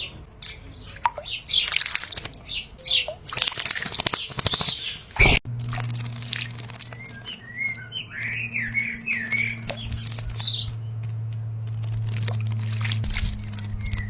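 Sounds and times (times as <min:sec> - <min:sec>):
small birds chirping: 0:00.0 - 0:14.0
steady low hum: 0:05.0 - 0:14.0.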